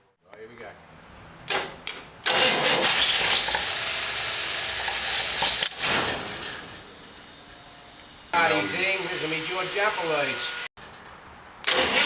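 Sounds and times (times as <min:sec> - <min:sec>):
starter motor cranking: 0:02.2 - 0:05.9, 0:11.7 - 0:12.0.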